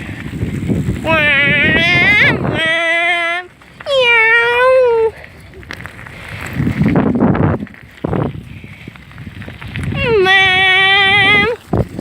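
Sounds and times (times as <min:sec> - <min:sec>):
person shouting long call: 0:01.0 - 0:05.1, 0:10.0 - 0:11.6.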